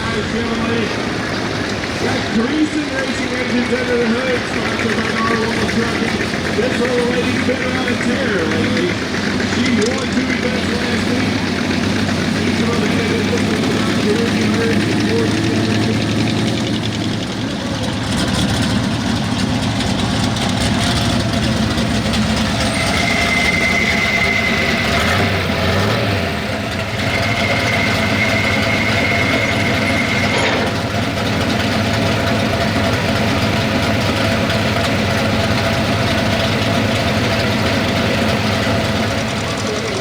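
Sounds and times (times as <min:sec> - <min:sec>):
pulling truck engine running: 0:00.0 - 0:40.0
thin high tone: 0:21.9 - 0:31.6.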